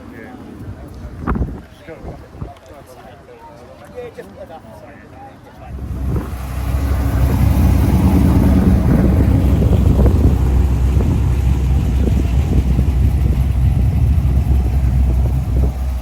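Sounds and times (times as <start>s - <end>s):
car engine running: 5.7s - 16.0s.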